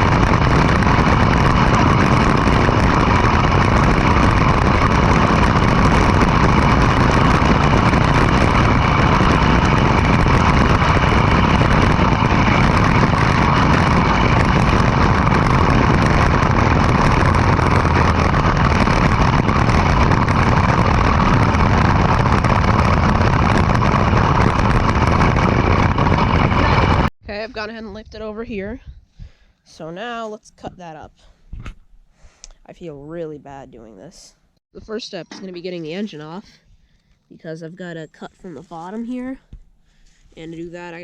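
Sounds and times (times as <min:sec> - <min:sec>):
go-kart engine running: 0:00.0 - 0:27.1.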